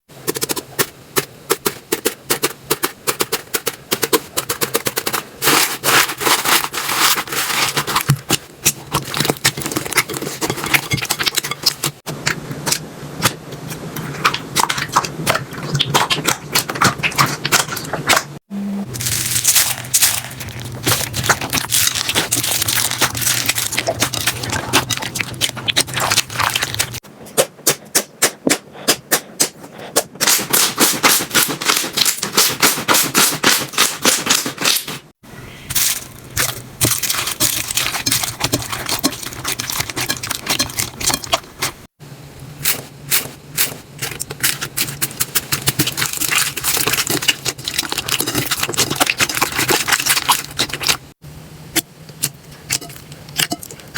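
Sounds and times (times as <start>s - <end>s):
slime crackling and snapping: 19.0s - 27.0s.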